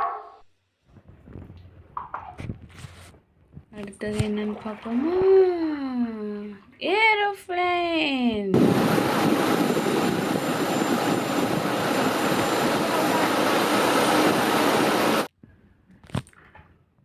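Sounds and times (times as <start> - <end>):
jet engine roar: 8.6 - 15.3.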